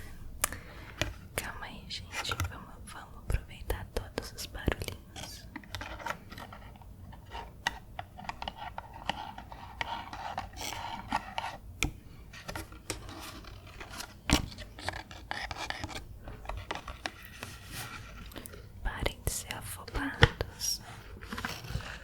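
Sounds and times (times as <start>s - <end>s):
soft scratchy rubbing: 5.1s - 11.6s, 12.3s - 22.0s.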